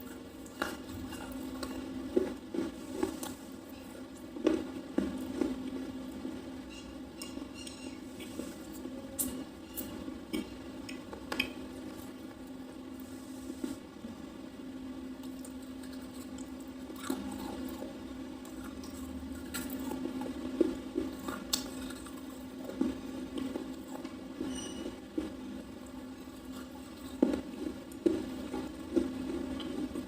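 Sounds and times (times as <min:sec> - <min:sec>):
person chewing with crunches: 0:00.0 - 0:12.3, 0:15.2 - 0:30.0.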